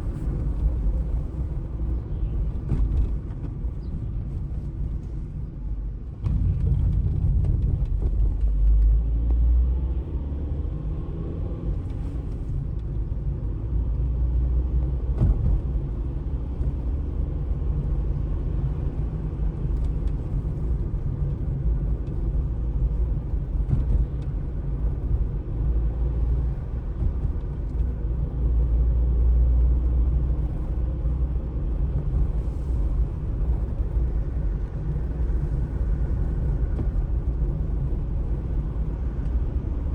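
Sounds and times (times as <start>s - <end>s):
steady low rumble: 0.0s - 39.9s.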